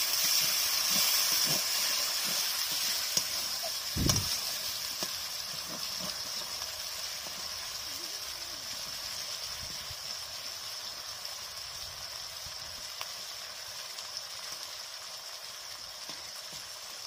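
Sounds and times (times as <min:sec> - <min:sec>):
spices frying in oil: 0:00.0 - 0:17.0.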